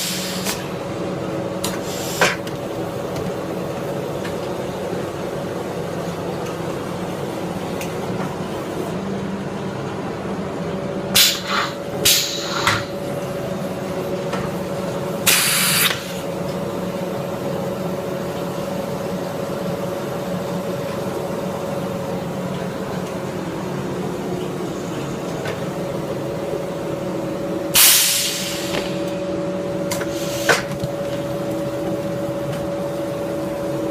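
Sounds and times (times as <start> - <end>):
compressed air hissing: 0.0 - 0.7, 1.7 - 2.4, 11.2 - 12.9, 15.2 - 16.2, 27.8 - 29.1, 30.0 - 30.7
blow-moulding machine humming: 0.0 - 33.9.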